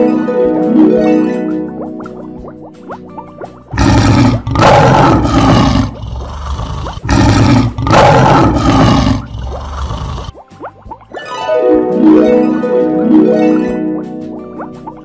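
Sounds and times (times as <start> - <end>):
lion roaring: 3.8 - 10.3.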